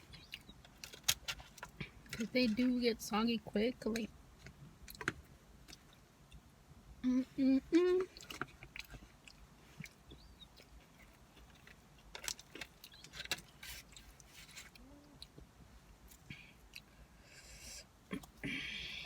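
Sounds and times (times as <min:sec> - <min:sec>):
person chewing food: 0:04.5 - 0:06.5, 0:08.0 - 0:18.4.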